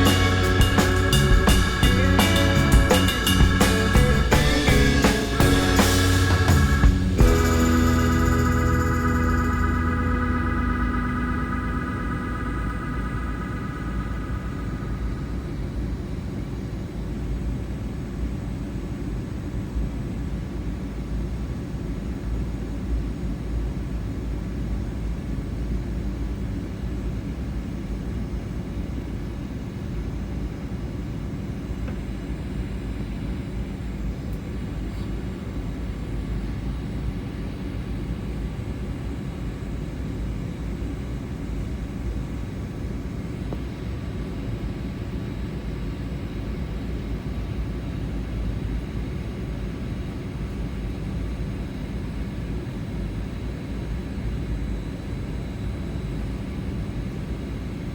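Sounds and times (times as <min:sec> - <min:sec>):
faint steady tones: 0:00.0 - 0:16.4.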